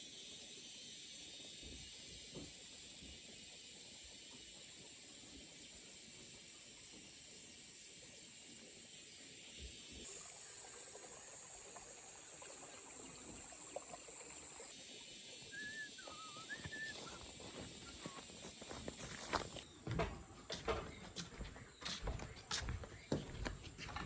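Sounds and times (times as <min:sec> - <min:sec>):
high insect drone: 0:00.0 - 0:19.6
warbling bird call: 0:15.2 - 0:19.4.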